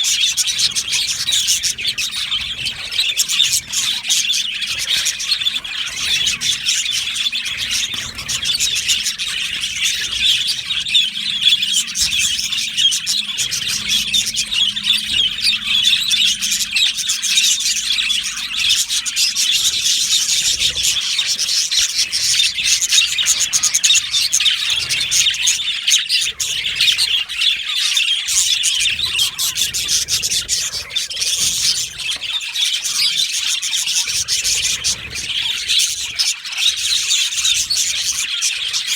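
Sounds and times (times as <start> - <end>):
flock of budgerigars chirping: 0.0 - 38.9.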